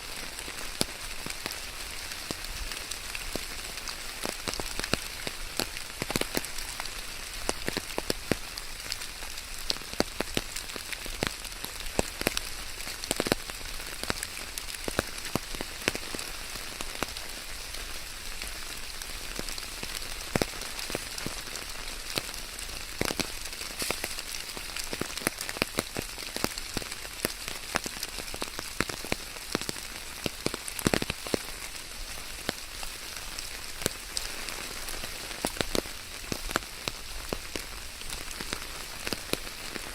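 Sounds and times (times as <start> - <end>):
steady rain falling: 0.0 - 39.9
raindrop impacts close by: 19.3 - 39.9.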